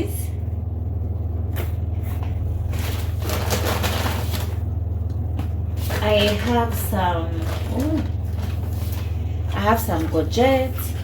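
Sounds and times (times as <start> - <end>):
low electrical hum: 0.0 - 11.0
grocery bags rustling: 2.4 - 4.8, 5.5 - 11.0.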